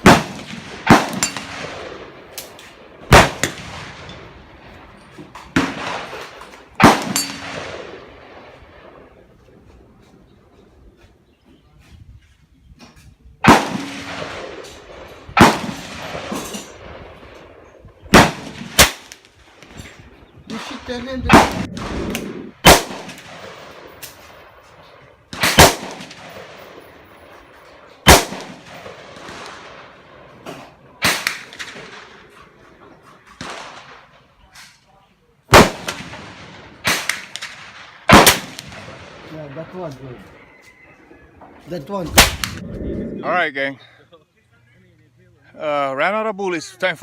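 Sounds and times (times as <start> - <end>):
air rifle shots echoing: 0.0 - 9.2, 13.4 - 34.2, 35.5 - 39.9, 42.0 - 42.6.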